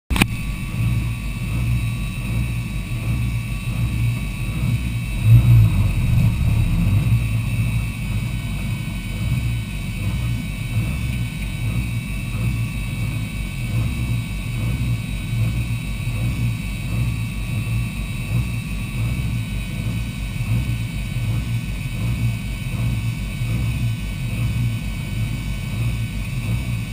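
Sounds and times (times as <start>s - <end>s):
faint high whine: 0.1s - 9.7s
car engine idling: 0.1s - 26.9s.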